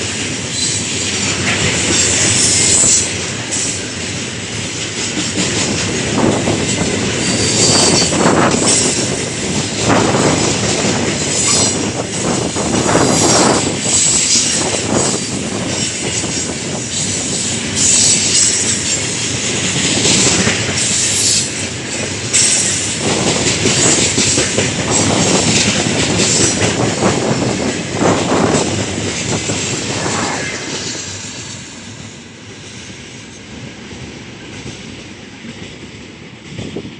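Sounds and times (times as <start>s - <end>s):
wheels clacking over rail joints: 0.2s - 29.4s
high wheel squeal: 7.2s - 9.0s.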